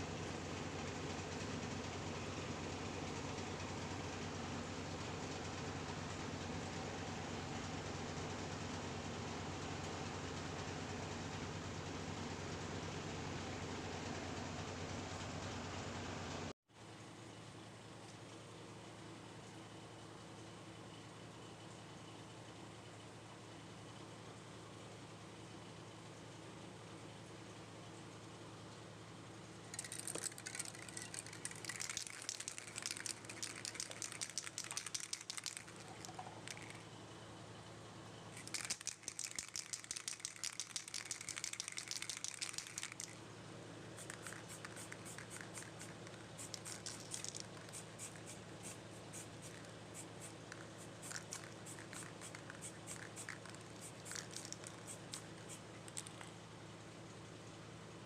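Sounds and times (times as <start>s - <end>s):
steady low hum: 29.4s - 58.0s.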